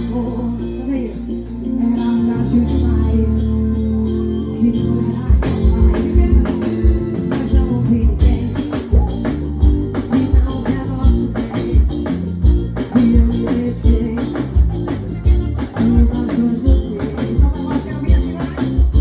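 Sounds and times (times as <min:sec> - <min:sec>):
live band music: 0:00.0 - 0:19.0
steady kick drum beat: 0:05.3 - 0:19.0.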